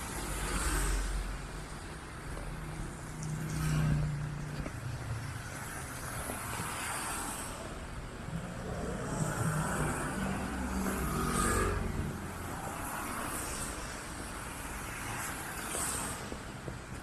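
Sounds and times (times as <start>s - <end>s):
traffic noise: 0.0s - 17.0s
car passing: 3.1s - 16.6s.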